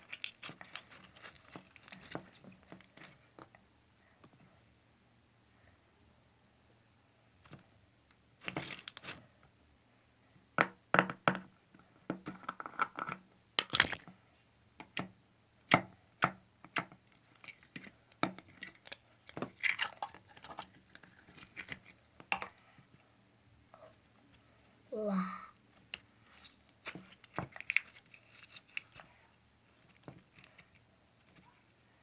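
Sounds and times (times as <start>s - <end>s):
slime crinkling: 0.0s - 3.4s, 17.2s - 22.6s, 26.3s - 31.5s.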